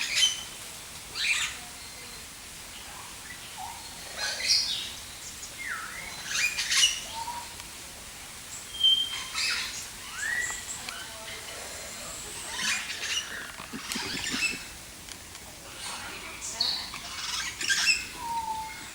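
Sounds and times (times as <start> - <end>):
birds chirping: 8.6 - 18.9.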